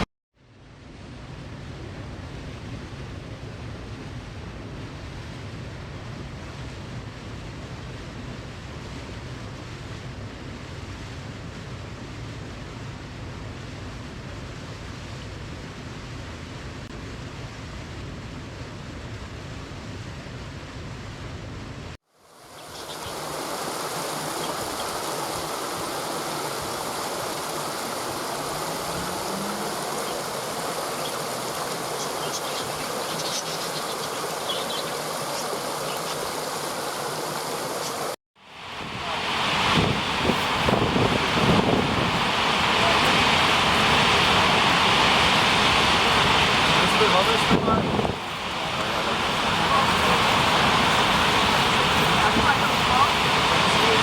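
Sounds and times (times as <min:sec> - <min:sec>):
louder bright rush of water: 0:22.1 - 0:54.0
waterfall rushing: 0:22.2 - 0:54.0.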